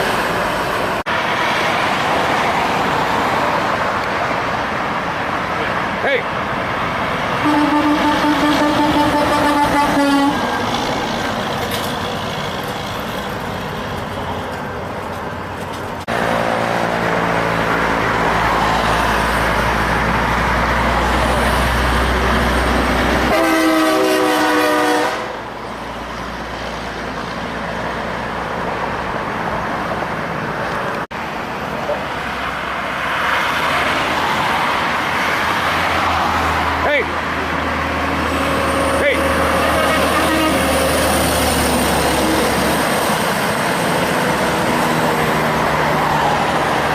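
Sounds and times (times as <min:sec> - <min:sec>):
road traffic: 0:00.0 - 0:46.9
truck horn honking: 0:07.4 - 0:10.6, 0:23.2 - 0:25.4, 0:38.7 - 0:41.1.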